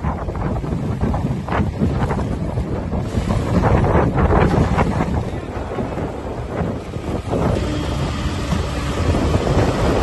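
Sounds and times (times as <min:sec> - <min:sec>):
rough sea splashing: 0:00.0 - 0:10.0
storm wind gusting on microphone: 0:00.0 - 0:10.0.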